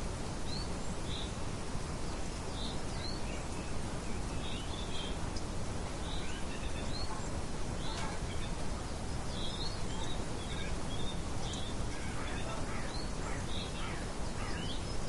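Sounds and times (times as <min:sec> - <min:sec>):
steady background hiss: 0:00.0 - 0:15.0
bird chirps: 0:06.0 - 0:15.0.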